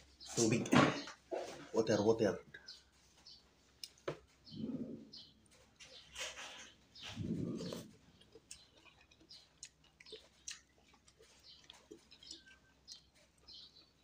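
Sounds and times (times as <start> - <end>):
person chewing food: 3.1 - 4.4, 5.1 - 14.0
mouth clicks and smacks: 3.8 - 4.2, 7.0 - 14.0.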